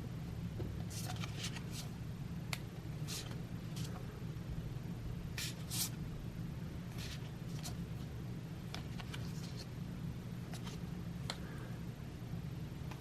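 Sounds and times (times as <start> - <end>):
steady low hum: 0.0 - 13.0
cards being flipped through: 0.9 - 1.9, 5.4 - 6.0, 7.0 - 7.8, 8.7 - 9.7, 10.5 - 11.4.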